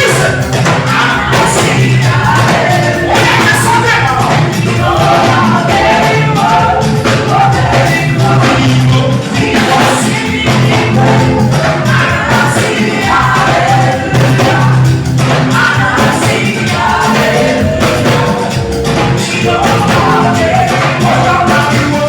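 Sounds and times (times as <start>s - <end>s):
live band with singers: 0.0s - 22.0s.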